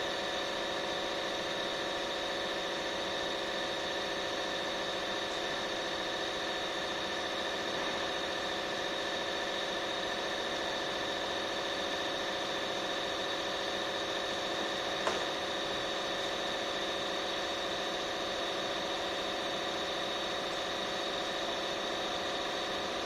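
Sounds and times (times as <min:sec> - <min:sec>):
machine hum with whining tones: 0:00.0 - 0:23.0.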